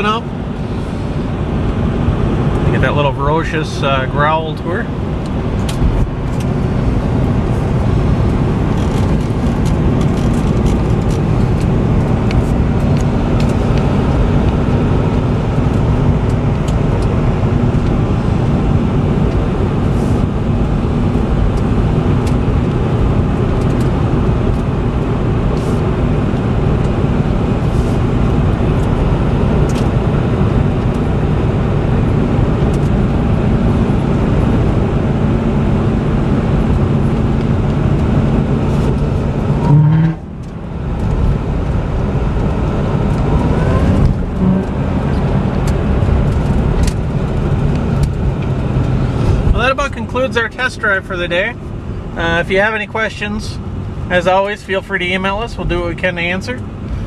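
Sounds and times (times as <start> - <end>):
car engine drone: 0.0 - 57.0
tyre and road rumble: 0.0 - 57.0.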